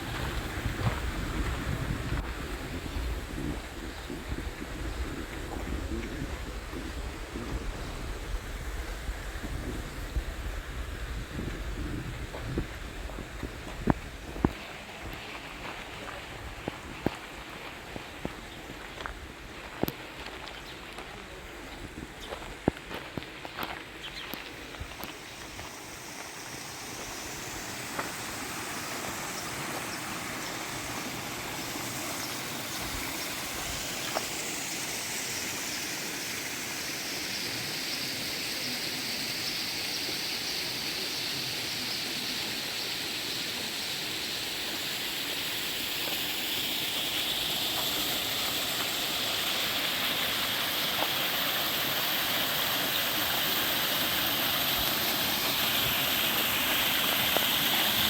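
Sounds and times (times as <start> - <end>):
stream water rushing: 0.0 - 21.5, 23.4 - 58.0.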